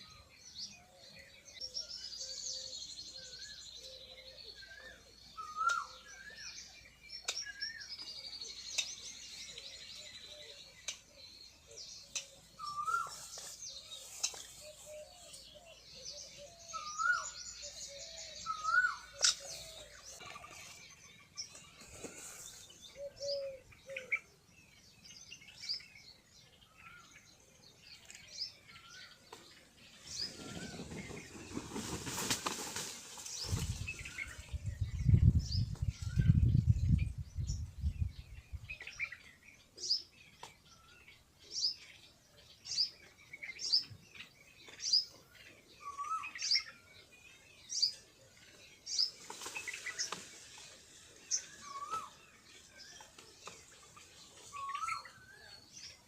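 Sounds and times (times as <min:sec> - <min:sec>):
birds warbling: 0:00.0 - 0:24.9, 0:42.6 - 0:56.0
birds chirping: 0:00.0 - 0:56.0.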